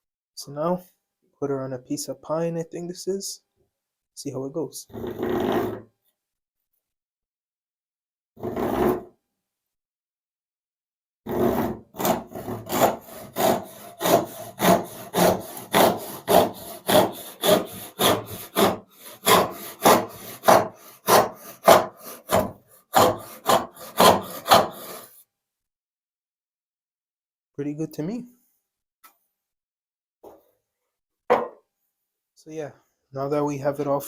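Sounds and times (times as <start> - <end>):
hand saw cutting wood: 4.9 - 5.8, 8.4 - 9.1, 11.3 - 25.2.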